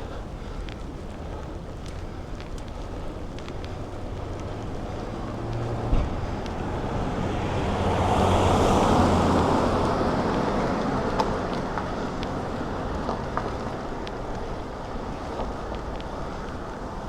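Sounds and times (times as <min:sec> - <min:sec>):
city traffic: 0:00.0 - 0:17.0
motor vehicle passing close: 0:03.6 - 0:12.2.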